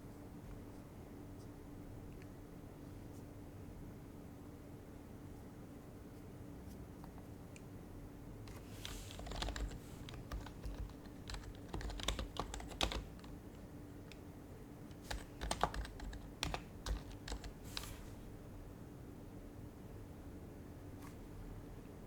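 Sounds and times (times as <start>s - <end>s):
soft keyboard typing: 8.5s - 18.1s.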